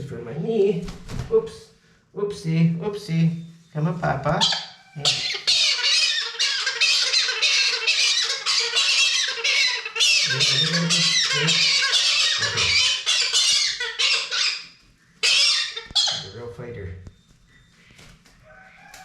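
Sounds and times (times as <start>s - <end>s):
parrot squawking harshly: 4.4s - 16.4s.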